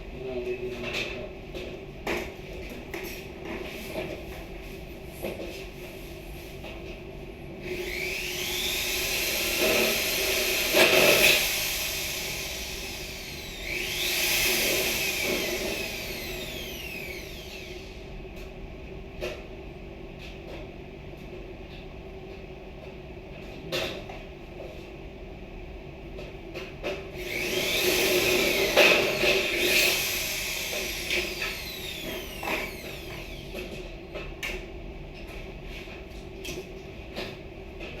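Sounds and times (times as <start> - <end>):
power tool motor spinning: 7.6 - 18.0, 27.2 - 33.7.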